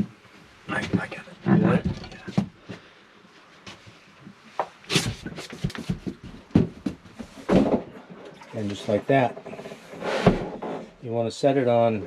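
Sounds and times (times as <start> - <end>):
knocks and clunks: 5.2 - 8.0, 9.2 - 10.9
toilet scraping on floor: 8.4 - 10.9.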